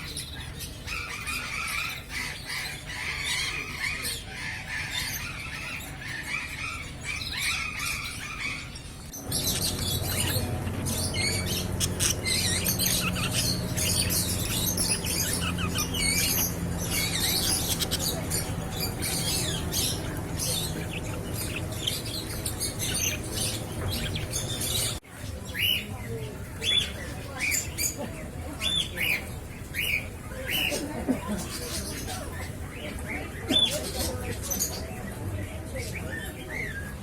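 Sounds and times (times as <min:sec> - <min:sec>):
birds chirping and squawking: 0:00.0 - 0:37.0
steady low hum: 0:07.8 - 0:25.0.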